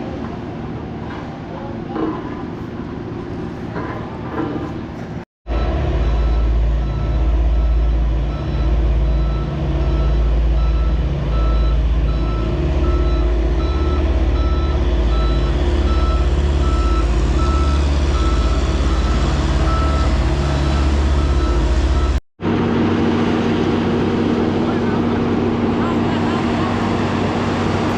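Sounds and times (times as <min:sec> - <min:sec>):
loud engine rumble: 0:00.0 - 0:27.9
reversing alarm beeping: 0:05.5 - 0:22.2.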